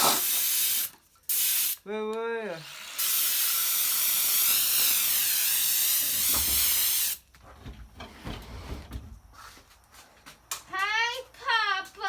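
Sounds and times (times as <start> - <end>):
loud hiss of escaping gas: 0.0 - 1.8, 2.8 - 7.2.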